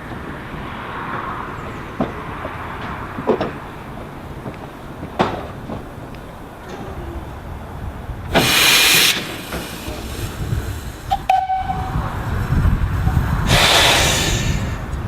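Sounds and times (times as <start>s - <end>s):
steam locomotive steam hiss: 8.3s - 15.0s.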